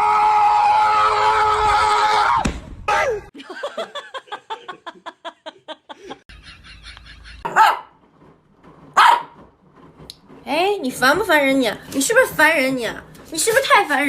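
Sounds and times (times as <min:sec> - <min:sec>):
dog barking: 0:07.5 - 0:08.0, 0:09.0 - 0:09.4
dog yipping: 0:07.5 - 0:08.0, 0:09.0 - 0:09.4.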